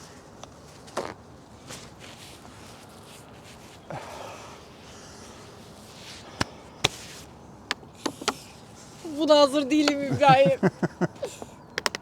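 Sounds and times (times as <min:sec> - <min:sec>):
rustle: 0:00.0 - 0:11.7
sharp clicks and knocks: 0:11.8 - 0:12.0.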